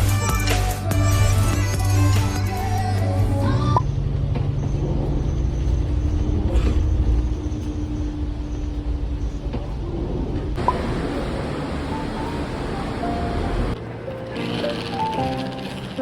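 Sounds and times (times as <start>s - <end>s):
moving vehicle rumble: 1.4s - 16.0s.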